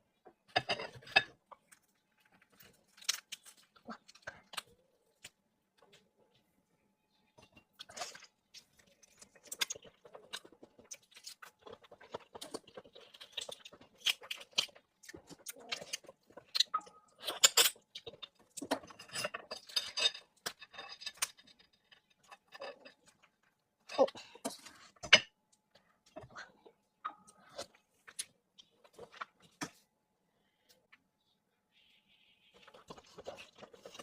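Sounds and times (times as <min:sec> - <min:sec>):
chewing and wet mouth noises: 0:07.7 - 0:19.0.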